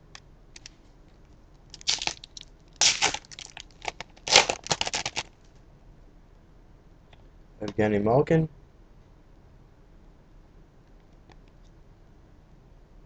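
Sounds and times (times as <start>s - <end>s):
wrapper tearing and crinkling: 1.7s - 5.4s.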